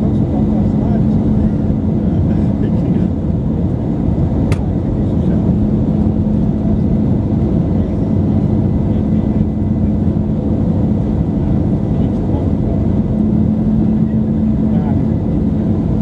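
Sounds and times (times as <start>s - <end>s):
airplane cabin engine noise: 0.0s - 16.0s
sharp click: 4.5s - 4.7s.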